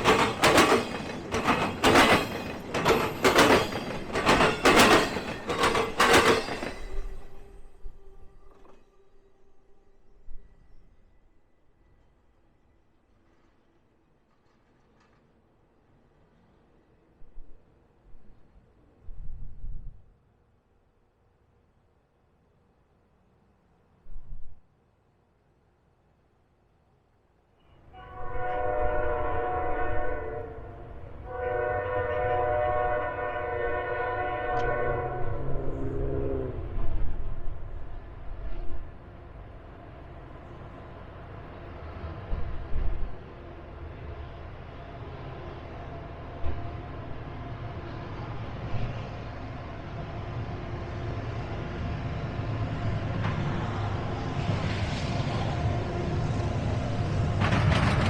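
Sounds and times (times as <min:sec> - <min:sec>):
locomotive air horn: 0:27.9 - 0:36.6.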